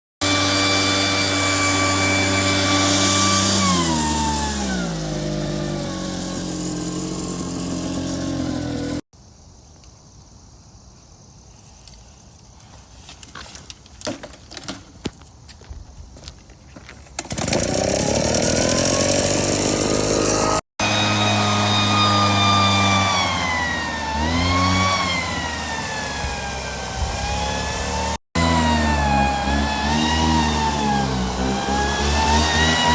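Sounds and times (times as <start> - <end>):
small engine running: 0.2 - 9.0, 17.2 - 32.9.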